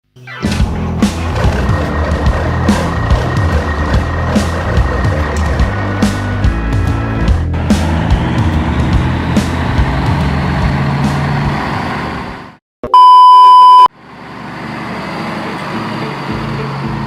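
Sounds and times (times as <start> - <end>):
truck engine running: 0.6 - 12.6, 14.0 - 17.0
high censor beep: 12.8 - 13.9.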